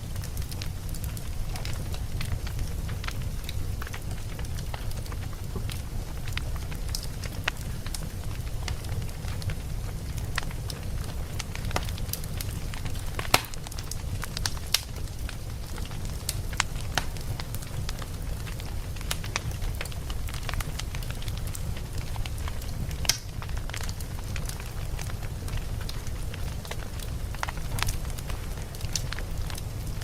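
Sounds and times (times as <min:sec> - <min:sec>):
fire crackling and popping: 0:00.0 - 0:30.0
log fire rumbling: 0:00.0 - 0:30.0.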